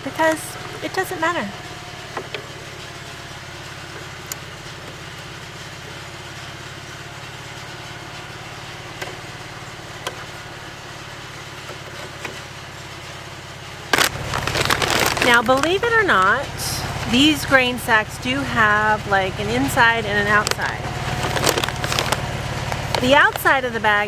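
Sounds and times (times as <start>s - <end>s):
low engine-like hum: 0.0s - 12.1s, 12.7s - 24.0s.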